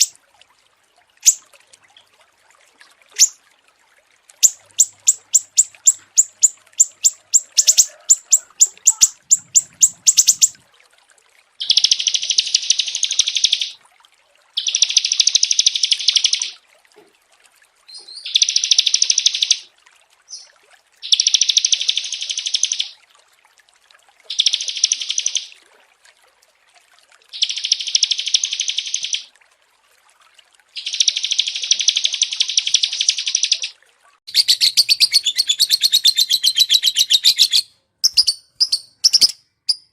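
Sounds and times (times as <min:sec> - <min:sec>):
songbird chirping: 0:03.2 - 0:03.4, 0:04.4 - 0:10.6, 0:11.6 - 0:13.8, 0:27.4 - 0:29.3, 0:30.8 - 0:33.7, 0:34.3 - 0:39.9
songbird high trills: 0:03.2 - 0:03.4, 0:04.4 - 0:10.6, 0:34.3 - 0:39.9.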